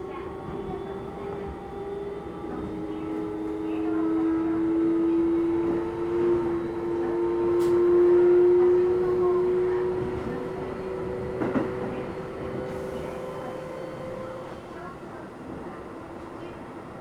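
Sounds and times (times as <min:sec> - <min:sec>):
train rolling noise: 0:04.6 - 0:16.3.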